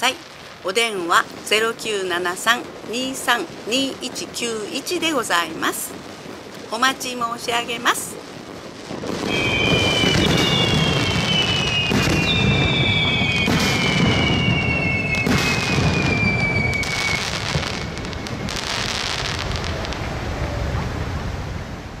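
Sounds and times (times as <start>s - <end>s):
crackling rumble: 0.0s - 22.0s
firework shells booming: 2.4s - 20.2s
high falling firework whistles: 8.3s - 21.4s.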